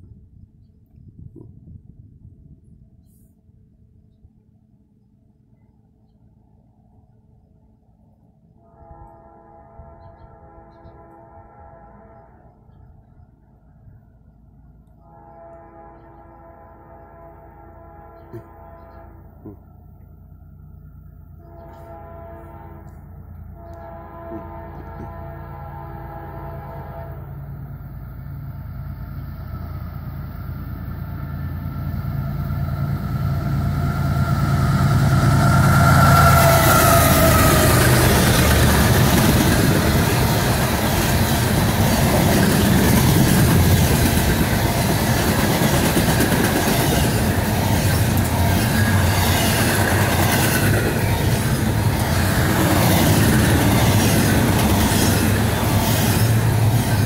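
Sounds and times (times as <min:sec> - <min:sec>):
diesel locomotives passing: 0:05.0 - 0:57.0
freight cars rumbling past: 0:27.6 - 0:57.0.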